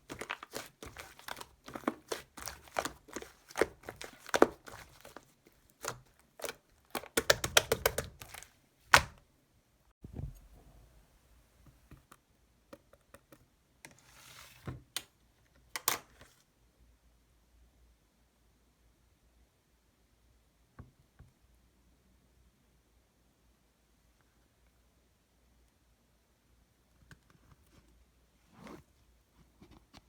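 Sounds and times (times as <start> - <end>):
crinkling handling noise: 0.0 - 9.2.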